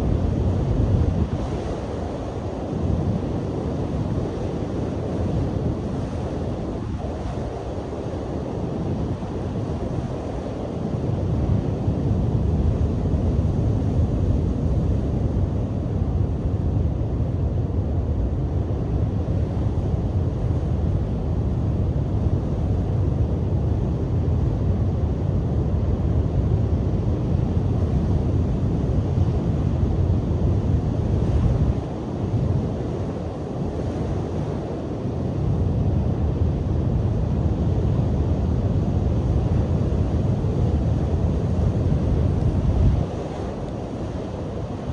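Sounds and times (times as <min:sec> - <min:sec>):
wind buffeting microphone: 0:35.3 - 0:44.9
waves breaking on shore: 0:40.2 - 0:44.9.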